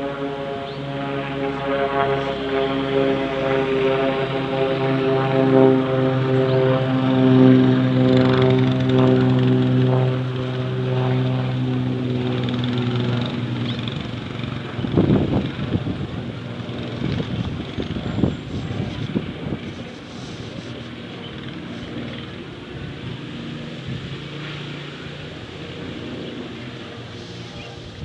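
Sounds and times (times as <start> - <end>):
propeller airplane engine droning: 0.0 - 28.0
gusty wind noise: 0.9 - 26.0, 26.6 - 28.0.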